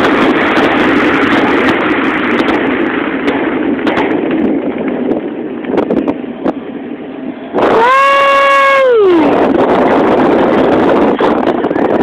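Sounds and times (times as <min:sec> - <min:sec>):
fireworks pops: 0:00.0 - 0:05.0
dense rush of noise: 0:00.0 - 0:12.0.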